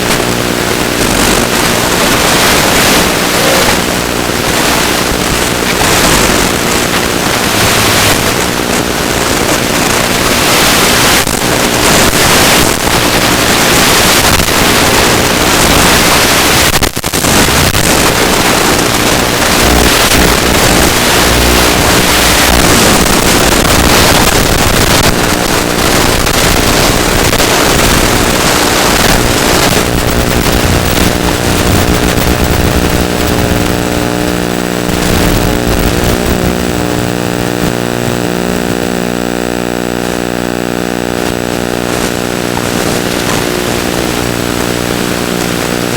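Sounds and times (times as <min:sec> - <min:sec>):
electric motor and propeller drone: 0:00.0 - 0:13.8
wind rushing over microphone: 0:00.0 - 0:39.0, 0:41.0 - 0:45.9.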